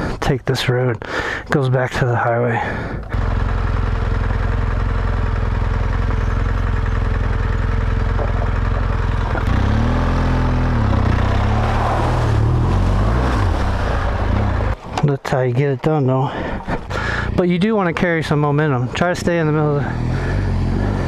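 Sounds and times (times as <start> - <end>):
motorcycle engine revving: 3.1 - 14.8, 19.2 - 21.0.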